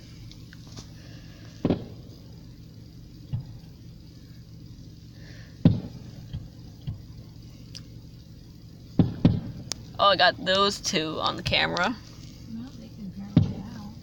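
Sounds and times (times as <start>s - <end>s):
steady low hum: 0.0s - 14.0s
firework shells bursting: 1.6s - 2.3s, 8.9s - 9.8s.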